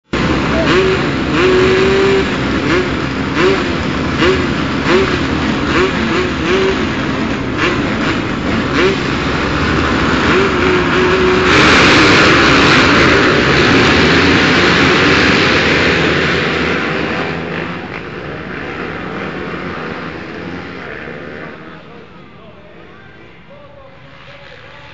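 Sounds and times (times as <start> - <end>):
motocross bikes revving: 0.0 - 24.9.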